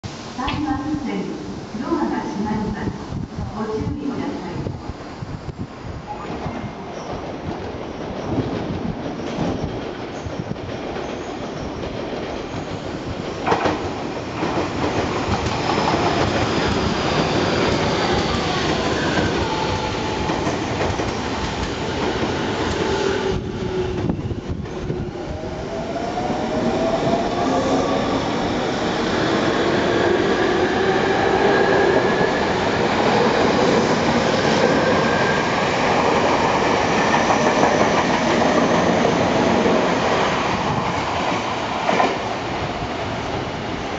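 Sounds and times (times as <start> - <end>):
wheels clacking on rails: 6.2 - 25.2.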